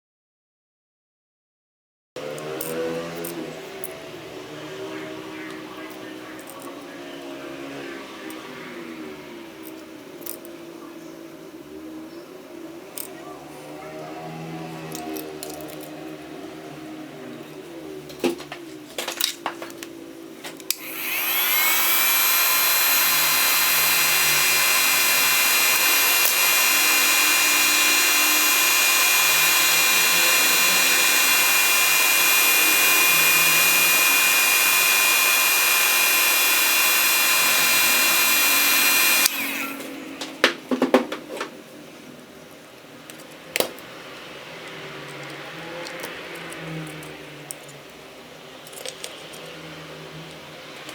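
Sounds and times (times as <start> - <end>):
power tool motor whine: 2.2 - 10.4, 13.0 - 18.8, 20.7 - 40.6
clicks and taps of parts: 18.1 - 20.8, 48.6 - 49.6.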